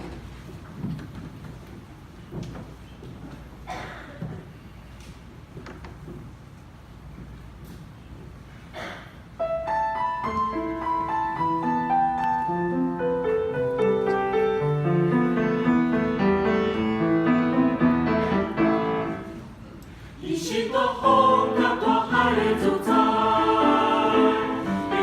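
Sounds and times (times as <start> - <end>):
piano playing a hymn: 9.4 - 19.6, 20.2 - 25.0.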